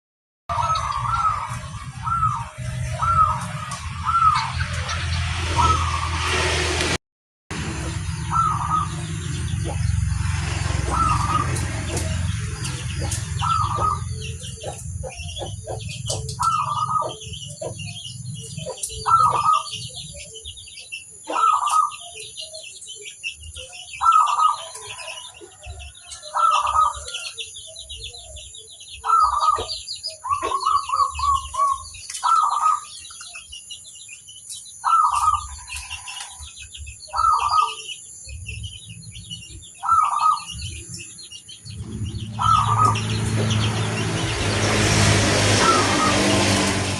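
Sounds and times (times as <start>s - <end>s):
doves cooing: 0.5s - 4.8s, 8.2s - 20.5s, 21.2s - 22.4s, 23.6s - 27.3s, 29.0s - 33.0s, 37.1s - 37.9s, 39.8s - 40.6s, 42.4s - 43.8s
small birds chirping: 0.5s - 6.1s, 7.7s - 46.9s.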